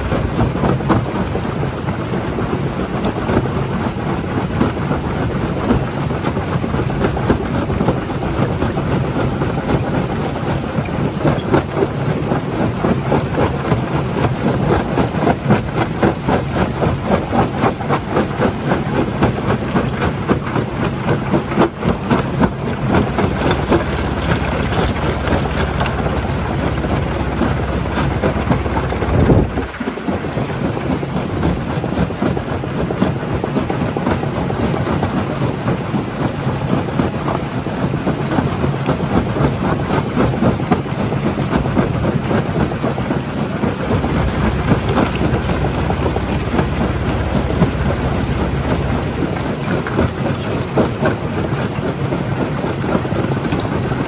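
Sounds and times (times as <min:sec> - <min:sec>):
stone crusher rumbling: 0:20.6 - 0:31.6, 0:42.4 - 0:53.0.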